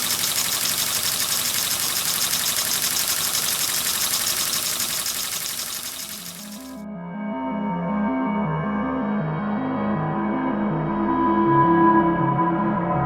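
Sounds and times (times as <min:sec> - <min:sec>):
steam engine hissing and beating: 0:00.0 - 0:06.8.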